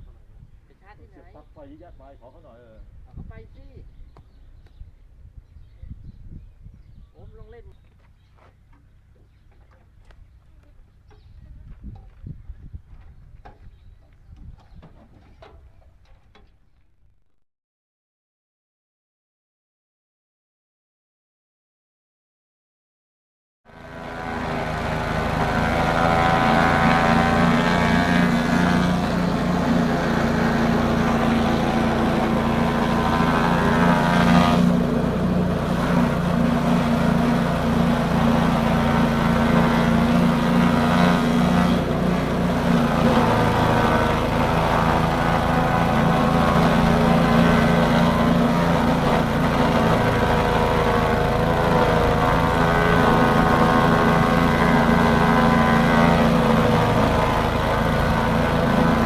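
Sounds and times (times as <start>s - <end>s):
chopping machine motor drone: 23.7s - 59.0s.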